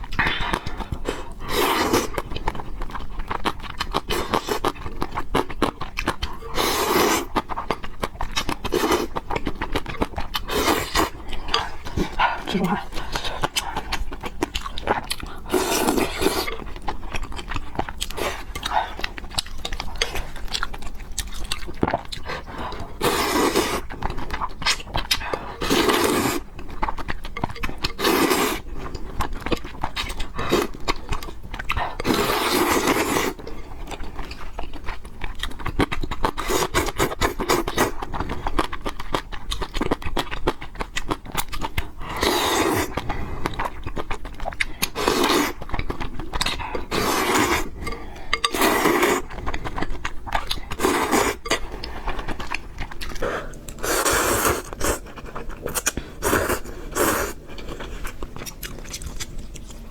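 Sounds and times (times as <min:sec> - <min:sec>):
wet chewing: 0:00.0 - 0:59.9
loud slurps: 0:53.2 - 0:55.1.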